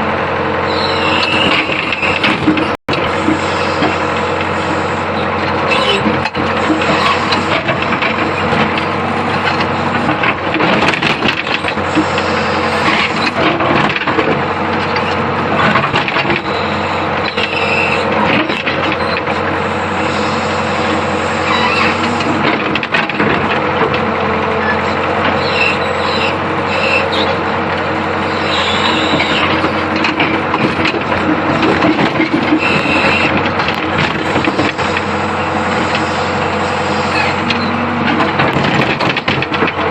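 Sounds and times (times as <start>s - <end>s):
excavator running: 0.0s - 39.9s
machine knocks and clanks: 5.5s - 16.5s, 18.2s - 19.4s, 21.7s - 24.4s, 29.1s - 35.2s, 37.3s - 39.9s.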